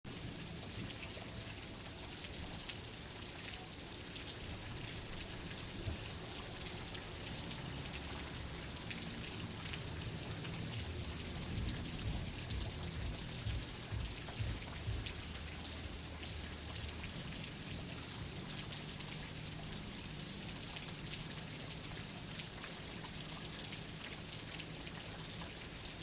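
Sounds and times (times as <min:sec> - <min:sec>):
steady rain hiss: 0:00.1 - 0:26.0.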